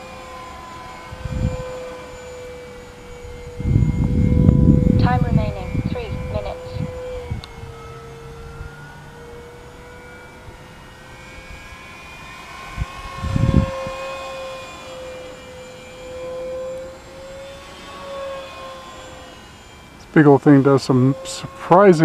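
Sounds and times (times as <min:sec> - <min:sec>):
rc plane electric motor whine: 0:00.0 - 0:22.0.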